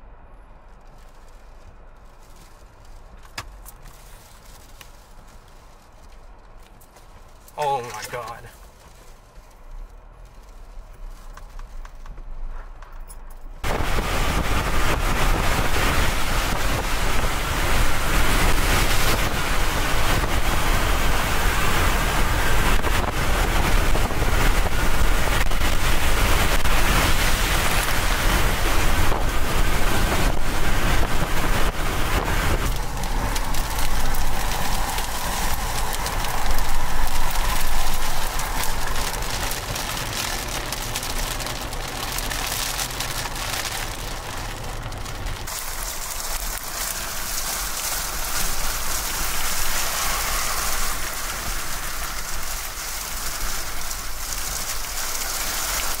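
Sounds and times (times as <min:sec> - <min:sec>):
wind: 0:00.0 - 0:56.0
heavy rain: 0:07.4 - 0:08.5, 0:13.6 - 0:56.0.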